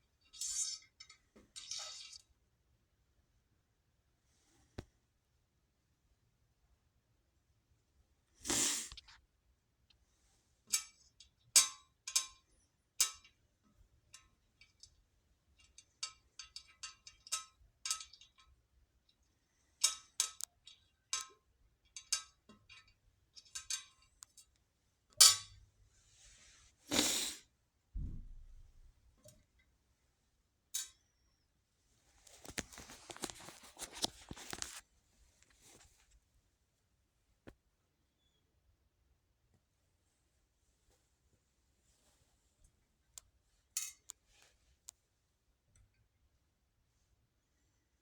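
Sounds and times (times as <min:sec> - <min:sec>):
handling rustle: 0:32.1 - 0:36.2.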